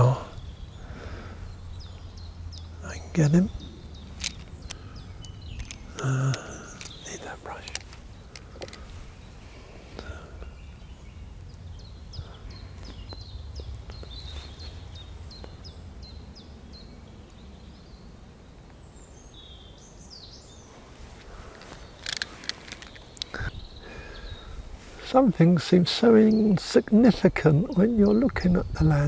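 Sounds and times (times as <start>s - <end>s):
steady low rumble: 0.0s - 18.3s
songbird singing: 0.0s - 29.0s.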